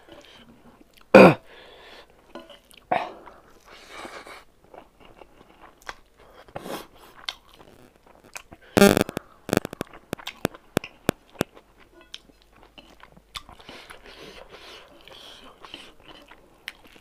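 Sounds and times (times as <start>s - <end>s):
wet crunchy chewing: 6.9s - 14.2s
sharp clicks: 8.8s - 10.4s.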